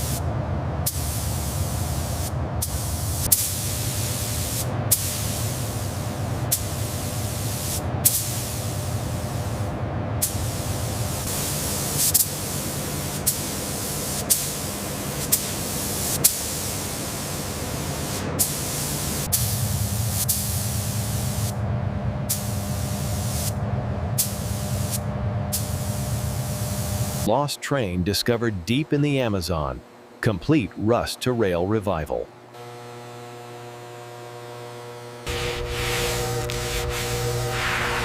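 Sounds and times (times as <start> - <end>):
hiss of spraying: 0.0 - 0.2, 0.9 - 21.6, 22.3 - 23.6, 24.2 - 27.3, 35.3 - 38.0
low hum: 19.3 - 27.3, 32.2 - 38.0.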